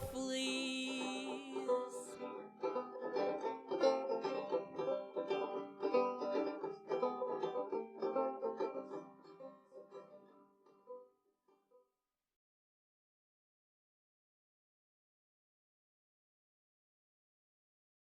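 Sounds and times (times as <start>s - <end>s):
acoustic plucked string instrument: 0.0s - 11.1s.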